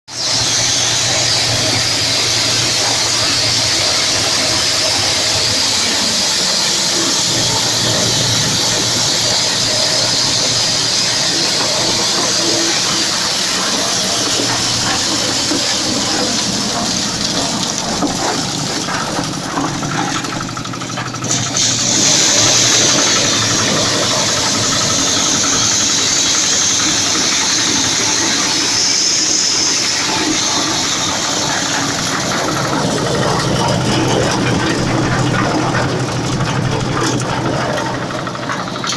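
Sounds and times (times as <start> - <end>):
corn thresher running: 0.1 - 38.9.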